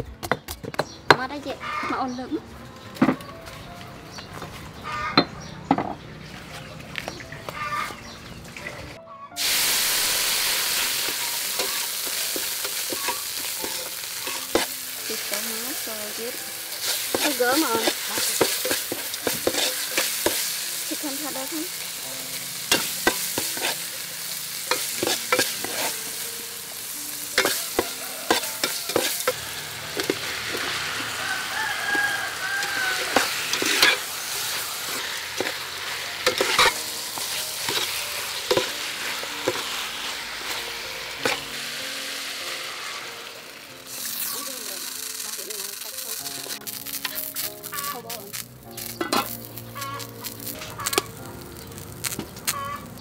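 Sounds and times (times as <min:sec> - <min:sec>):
meat sizzling in a pot: 0:09.4 - 0:53.0
metal spoon scraping a pot: 0:33.1 - 0:34.1, 0:36.2 - 0:37.9, 0:48.9 - 0:50.0.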